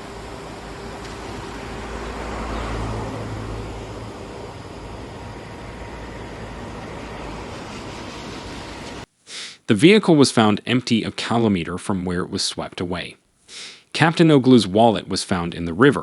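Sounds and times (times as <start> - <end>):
steady rushing background: 0.0 - 9.1
vehicle passing by: 0.0 - 9.1.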